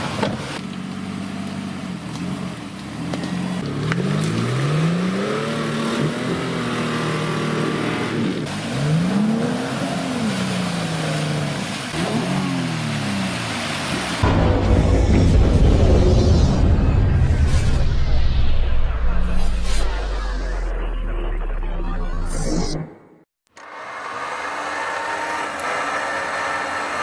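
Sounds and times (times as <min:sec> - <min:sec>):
suv engines revving: 0:00.0 - 0:14.3.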